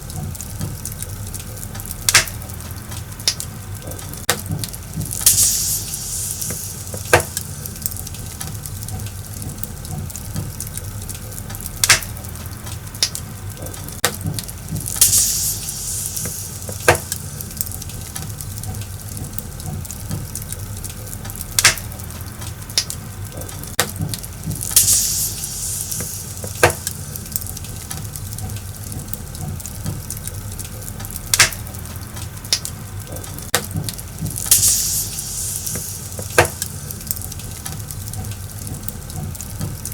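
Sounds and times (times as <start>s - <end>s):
fire crackling pops: 0.0s - 39.9s
wood fire rumbling and hissing: 0.0s - 39.9s
hissing fire flare: 4.6s - 9.4s, 14.4s - 19.2s, 24.2s - 28.9s, 33.9s - 38.6s.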